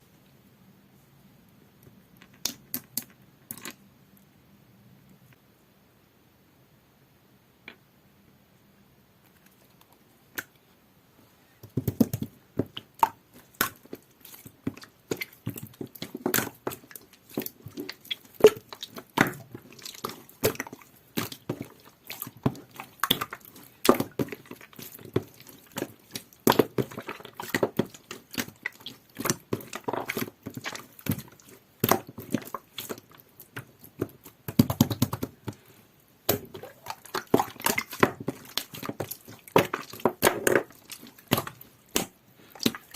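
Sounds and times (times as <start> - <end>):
wet pops and clicks: 2.3 - 3.1, 36.3 - 42.9.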